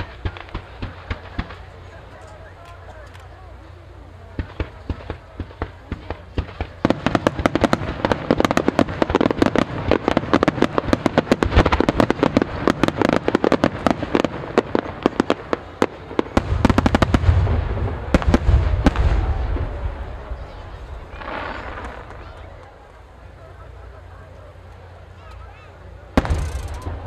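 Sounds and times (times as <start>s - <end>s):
firework cracks and pops: 0.0s - 3.3s, 4.3s - 22.7s, 26.2s - 27.0s
deep firework booms: 4.3s - 22.4s, 26.2s - 27.0s.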